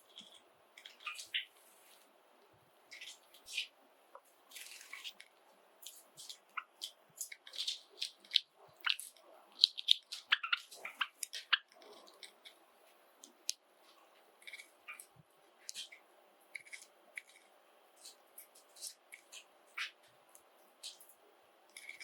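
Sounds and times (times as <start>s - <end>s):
sparrows chip calls and clicks: 0.0s - 1.6s, 2.9s - 3.8s, 5.8s - 12.6s, 18.0s - 20.0s.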